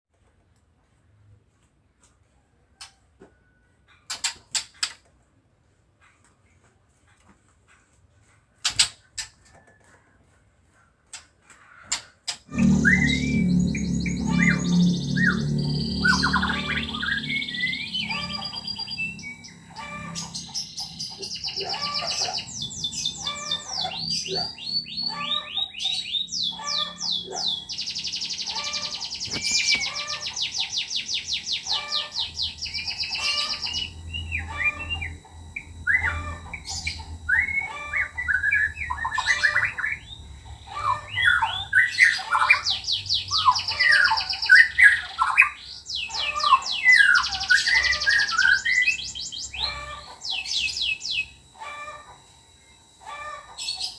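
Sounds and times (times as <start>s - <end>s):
bird singing trills and whistles: 12.6s - 51.4s.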